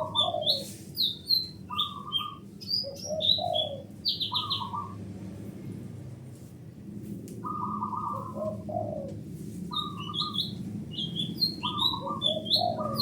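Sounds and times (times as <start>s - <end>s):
dove cooing: 0.0s - 0.7s, 1.7s - 5.0s, 7.4s - 13.0s
small birds chirping: 0.0s - 5.0s, 7.4s - 13.0s
low background hum: 0.0s - 13.0s.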